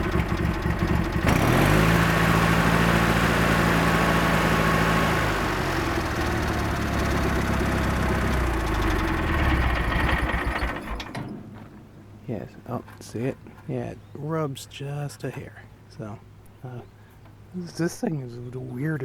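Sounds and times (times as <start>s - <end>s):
garden tractor engine revving: 0.0s - 11.2s.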